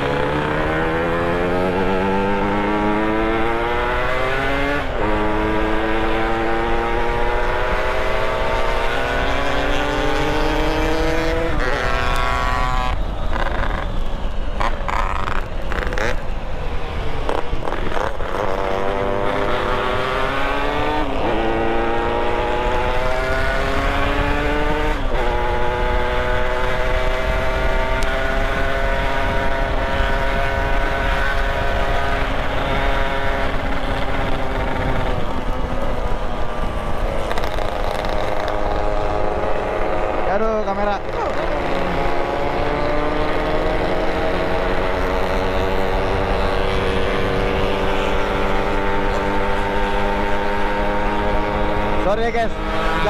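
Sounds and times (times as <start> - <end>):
wind rumble on microphone: 0.0 - 40.3, 41.0 - 53.0
motorcycle engine revving: 0.0 - 53.0.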